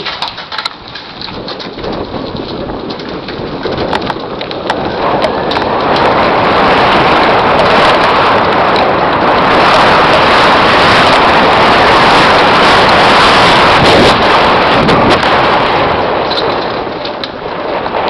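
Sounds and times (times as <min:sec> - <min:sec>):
clicks and knocks: 0:00.0 - 0:05.7
bike tyre noise on dirt: 0:00.0 - 0:18.0
wind roaring on microphone: 0:00.0 - 0:18.0.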